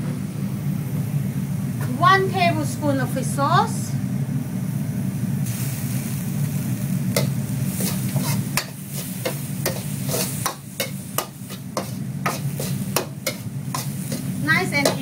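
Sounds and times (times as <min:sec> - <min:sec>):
steady low hum: 0:00.0 - 0:15.0
spoon scraping metal pan: 0:07.2 - 0:15.0.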